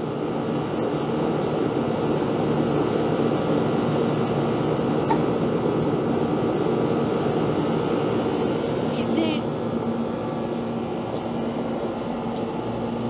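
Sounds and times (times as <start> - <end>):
aircraft droning overhead: 0.0 - 13.0.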